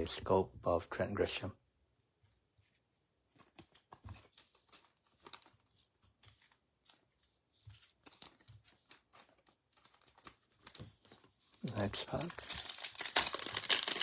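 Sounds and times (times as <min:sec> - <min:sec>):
cards and foil wrappers rustling: 0:03.3 - 0:14.0.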